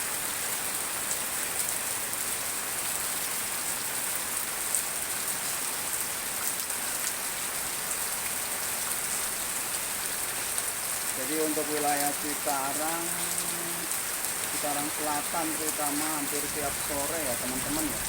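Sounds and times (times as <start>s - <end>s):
heavy rain hissing and pattering: 0.0s - 18.0s.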